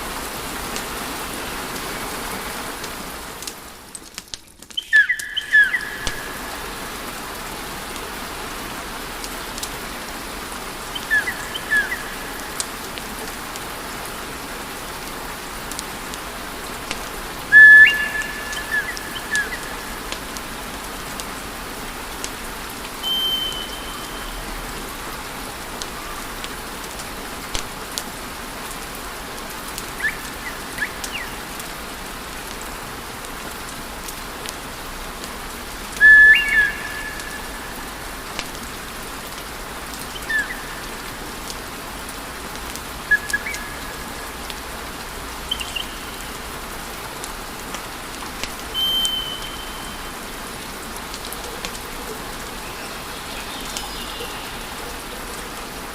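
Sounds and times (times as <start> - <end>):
short whistling tones: 23.0 - 24.3, 36.0 - 37.4, 48.7 - 50.1.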